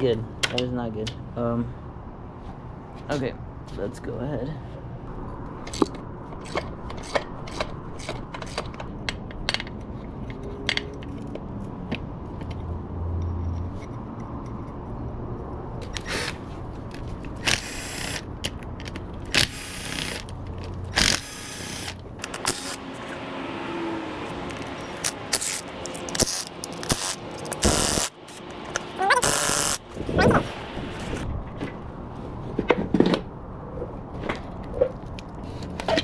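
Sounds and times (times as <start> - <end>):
short rough metallic bursts: 21.0 - 23.2, 24.1 - 31.2.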